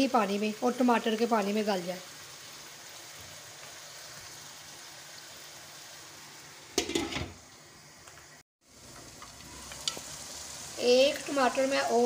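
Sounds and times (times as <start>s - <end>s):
meat sizzling in a wok: 0.0s - 12.0s
glass pan lid clattering: 6.8s - 7.4s.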